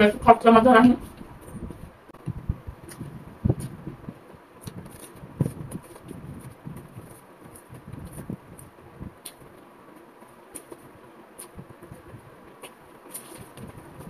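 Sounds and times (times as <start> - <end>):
small crunches: 4.6 - 9.5, 12.6 - 14.0
person chewing fried food: 4.6 - 14.0.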